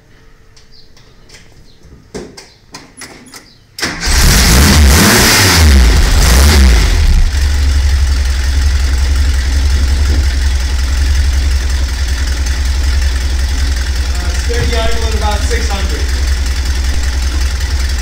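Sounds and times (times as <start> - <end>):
car engine starting and revving: 3.8 - 18.0.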